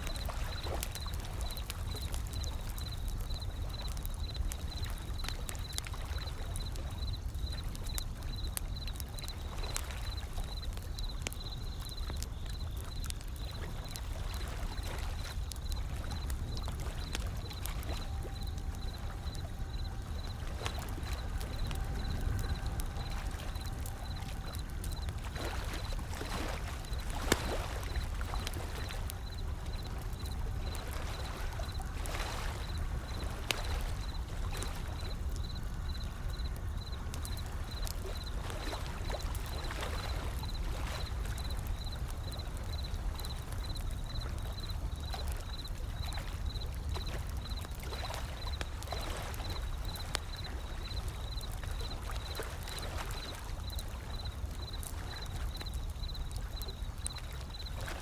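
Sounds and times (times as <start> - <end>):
wood fire crackling: 0.0 - 58.0
ocean waves rolling in: 13.0 - 44.4.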